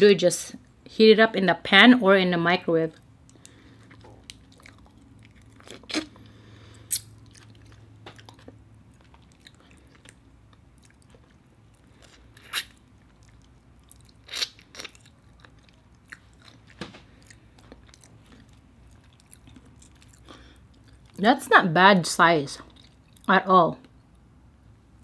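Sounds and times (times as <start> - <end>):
chewing and biting: 3.2 - 21.2, 22.6 - 23.3.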